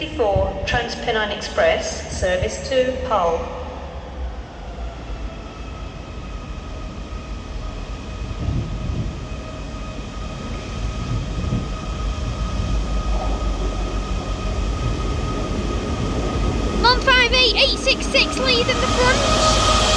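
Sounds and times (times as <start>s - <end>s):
diesel train engines rumbling: 0.0s - 19.9s
high engine whine: 8.4s - 19.9s.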